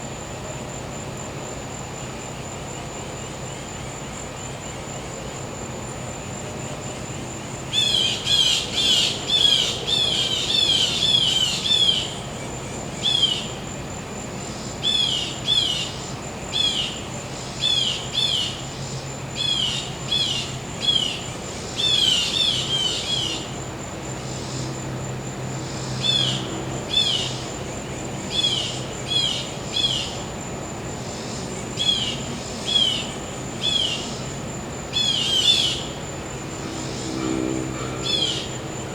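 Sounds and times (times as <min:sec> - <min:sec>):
insect trill: 0:00.0 - 0:38.9
generator humming: 0:22.3 - 0:38.9.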